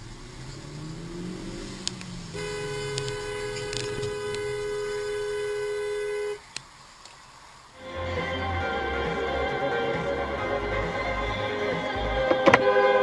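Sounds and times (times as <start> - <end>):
low road noise: 0.0 - 13.0
car horn: 2.2 - 6.5.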